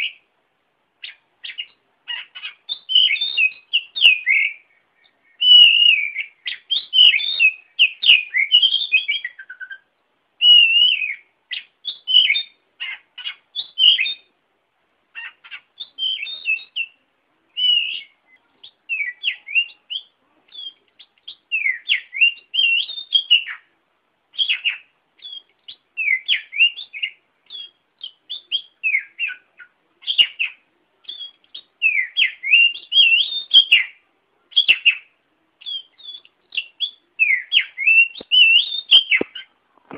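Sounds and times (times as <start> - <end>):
bird singing whistled phrases: 1.0 - 14.3, 15.2 - 23.7, 24.3 - 39.5.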